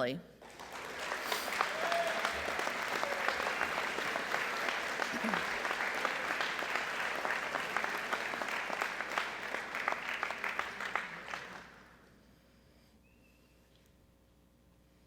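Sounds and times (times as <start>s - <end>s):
audience applauding: 0.4s - 12.0s.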